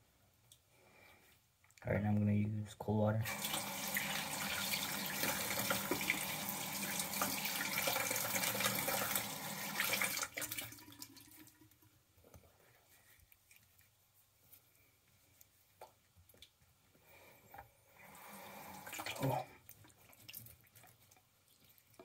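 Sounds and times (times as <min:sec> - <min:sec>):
tap water running into sink: 0:03.3 - 0:11.7.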